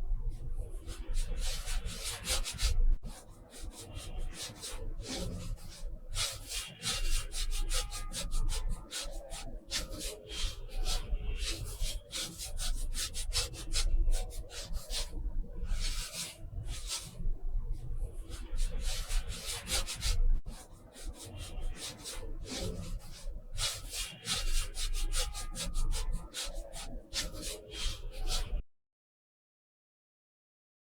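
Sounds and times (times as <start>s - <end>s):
paintbrush rubbing on paper: 0.9s - 28.6s.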